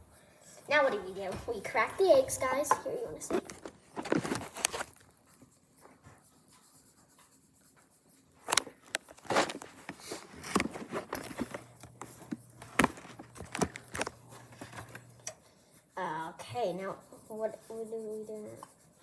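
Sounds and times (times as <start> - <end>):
kitchen handling sounds: 0.8 - 4.9, 8.5 - 15.1.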